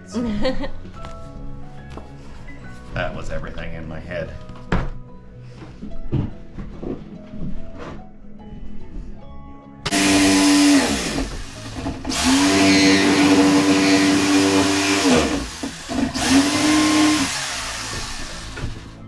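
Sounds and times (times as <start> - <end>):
electric power tool motor whine: 9.9 - 19.0.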